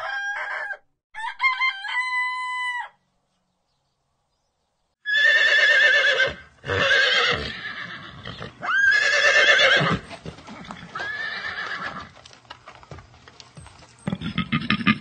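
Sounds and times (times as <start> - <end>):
horse whinnying: 5.0 - 12.2
hoofbeats clopping: 7.0 - 15.0.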